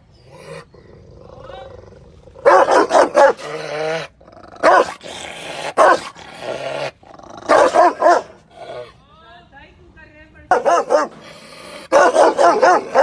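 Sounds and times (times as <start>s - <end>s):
dog growling: 0.2s - 7.8s
dog barking: 2.4s - 3.4s, 4.6s - 5.0s, 5.8s - 6.1s, 7.5s - 8.4s, 10.5s - 11.2s, 11.9s - 13.0s.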